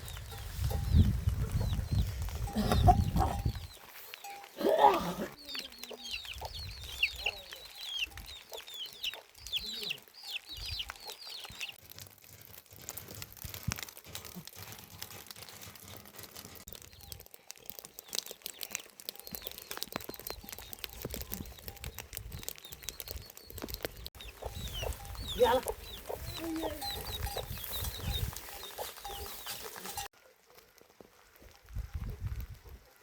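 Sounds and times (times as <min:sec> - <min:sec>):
chicks peeping: 0:00.4 - 0:03.8, 0:05.4 - 0:11.8, 0:24.2 - 0:29.7.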